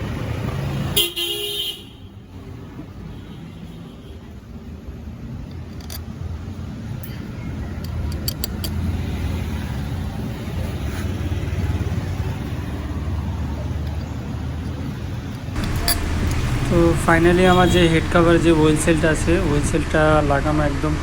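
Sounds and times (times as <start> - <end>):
vehicle engine running: 4.5 - 21.0
sharp metallic clicks: 5.4 - 6.2, 7.0 - 9.4, 13.8 - 17.2.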